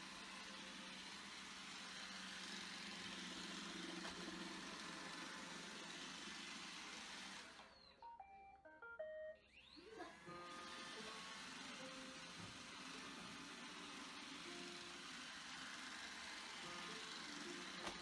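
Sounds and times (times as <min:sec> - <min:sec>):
electronic beeping melody: 0:08.0 - 0:09.5.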